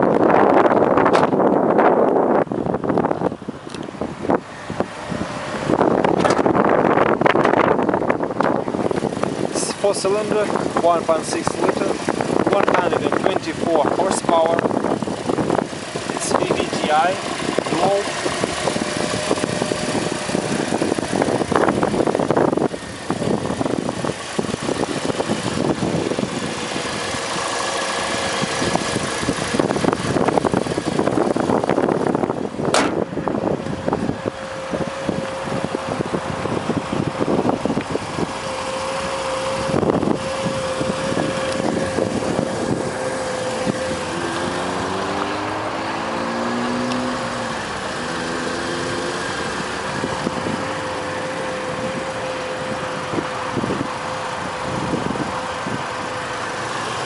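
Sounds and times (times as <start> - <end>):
car engine idling: 0.0 - 57.0
sharp click: 32.7 - 33.0.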